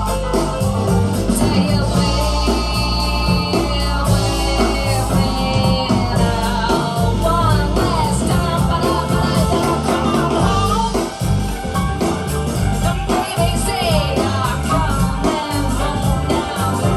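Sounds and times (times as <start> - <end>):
band song over speakers: 0.0 - 16.9.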